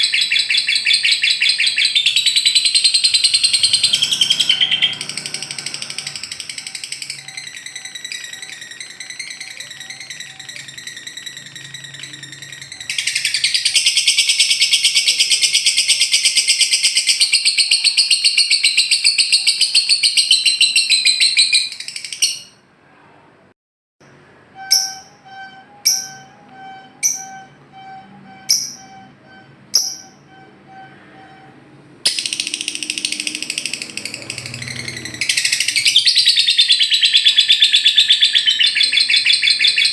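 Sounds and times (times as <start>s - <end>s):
bird rapid chattering trill: 0.0s - 22.5s, 32.1s - 39.9s.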